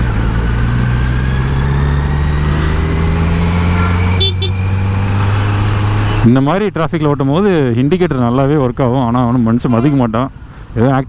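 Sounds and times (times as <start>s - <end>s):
horn toot: 3.4s - 4.6s.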